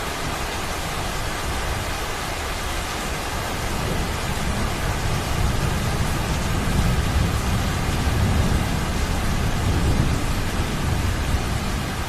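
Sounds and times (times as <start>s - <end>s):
heavy rain falling: 0.0s - 12.0s
thunder rumbling: 3.7s - 12.0s.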